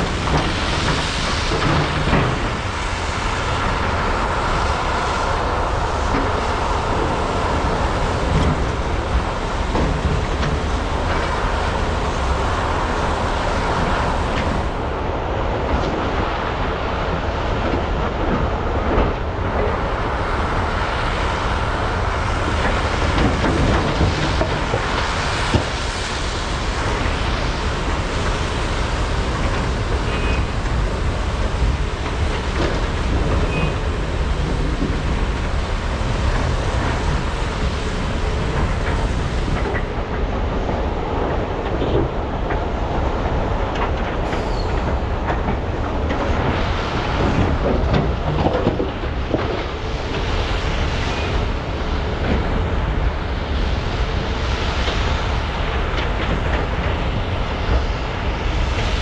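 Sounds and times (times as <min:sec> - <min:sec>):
excavator diesel engines rumbling: 0:00.0 - 0:14.9, 0:26.5 - 0:53.5.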